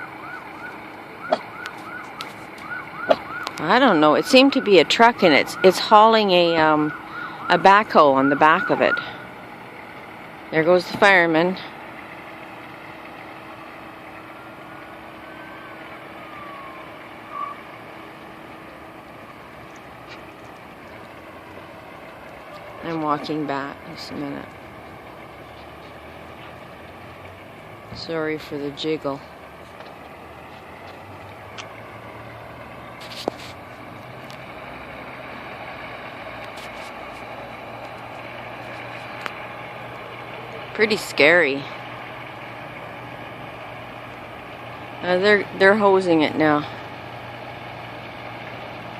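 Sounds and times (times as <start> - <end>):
fire engine humming: 0.0 - 48.9
street noise: 0.0 - 48.9.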